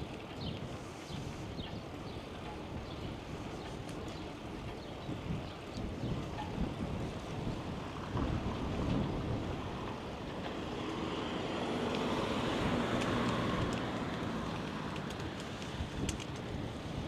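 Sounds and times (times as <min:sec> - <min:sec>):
wind buffeting microphone: 0:00.0 - 0:17.0
faint sharp ticks: 0:11.8 - 0:16.6.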